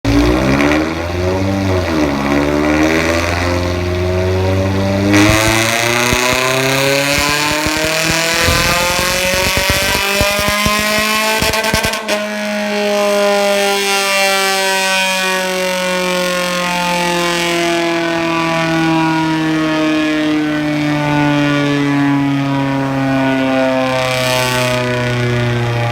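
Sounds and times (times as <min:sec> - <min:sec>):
car engine revving: 0:08.1 - 0:10.4.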